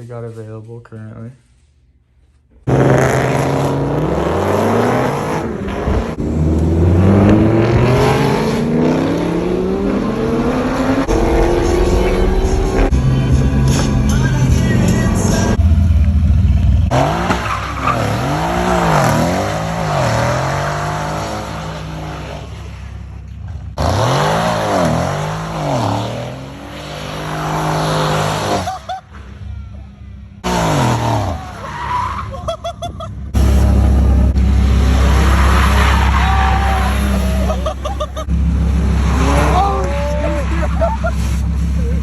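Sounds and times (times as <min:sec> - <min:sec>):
car engine revving: 0:02.6 - 0:28.7, 0:30.4 - 0:32.0, 0:33.3 - 0:42.0
tyre screech: 0:34.8 - 0:38.3.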